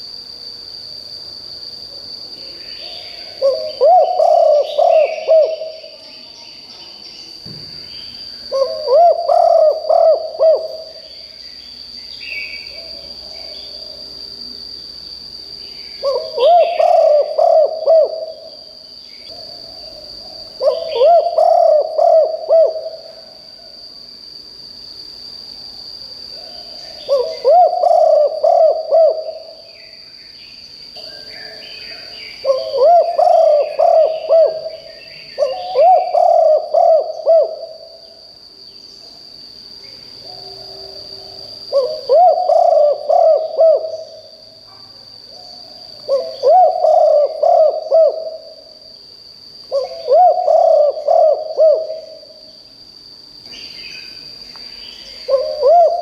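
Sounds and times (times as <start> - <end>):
dove cooing: 2.8 - 6.0, 8.5 - 11.0, 16.0 - 18.5, 19.3 - 23.4, 26.4 - 29.6, 31.4 - 38.0, 40.3 - 44.2, 46.1 - 48.6, 49.7 - 52.4, 55.2 - 56.0.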